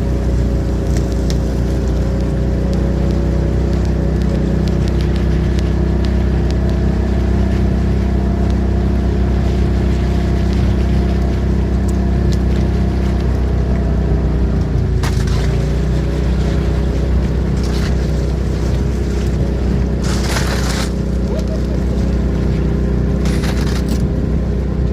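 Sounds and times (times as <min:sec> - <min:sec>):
engine running steadily: 0:00.0 - 0:24.9
rustling or scraping noises: 0:17.4 - 0:22.2, 0:23.2 - 0:24.1.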